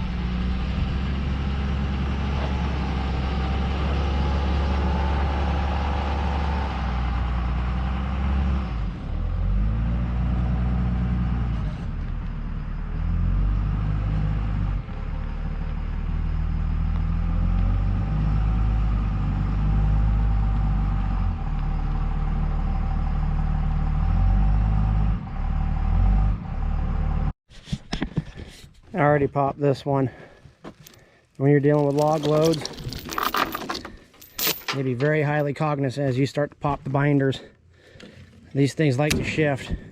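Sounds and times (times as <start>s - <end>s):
heavy vehicle engine revving: 0.0s - 27.4s.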